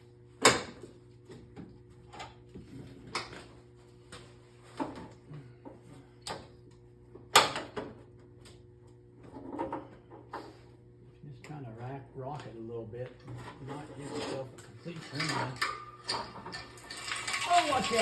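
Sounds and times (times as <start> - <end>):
steady low hum: 0.0 - 17.4
tools and parts clanking: 13.2 - 18.0.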